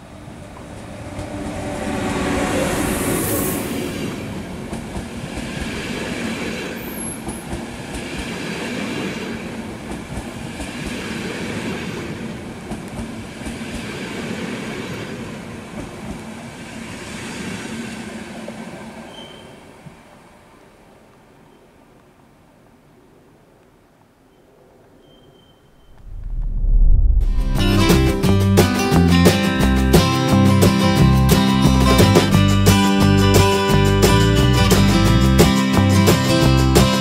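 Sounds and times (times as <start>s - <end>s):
electric locomotive passing: 0.0s - 21.5s
high wheel squeal: 0.5s - 4.7s, 19.0s - 19.6s, 24.3s - 26.0s
train wheels clattering: 4.0s - 12.0s.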